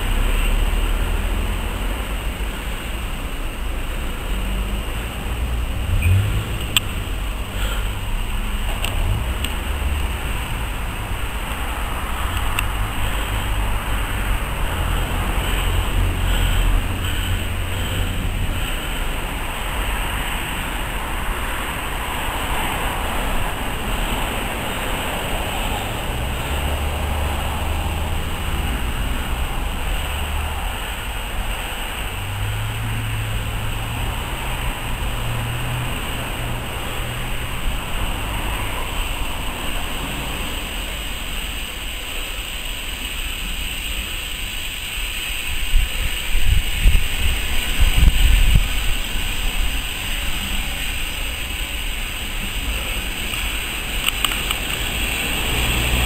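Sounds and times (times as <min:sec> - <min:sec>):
train coaches rumbling: 0:00.0 - 0:43.2.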